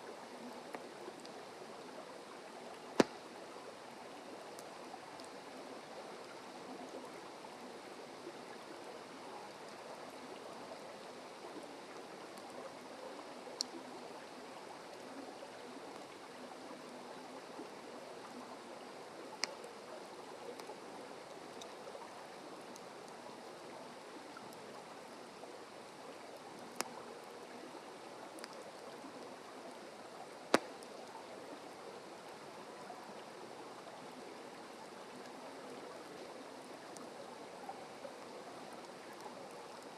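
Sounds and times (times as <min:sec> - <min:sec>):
burning wood popping: 0:03.0 - 0:03.2, 0:30.5 - 0:30.9.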